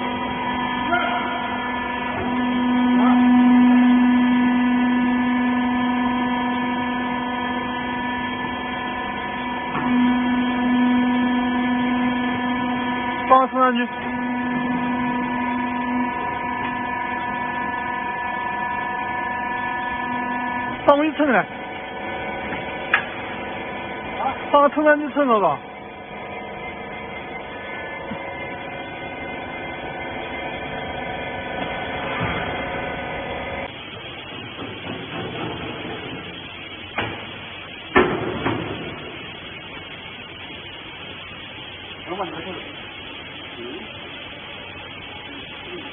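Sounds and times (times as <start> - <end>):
hydraulic power unit humming: 0.0 - 45.9.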